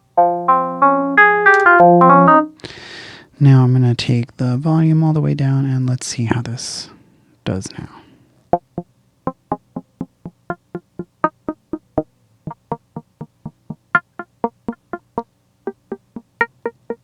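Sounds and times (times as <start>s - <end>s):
synthesizer plucky notes: 0.2s - 2.6s, 8.6s - 17.0s.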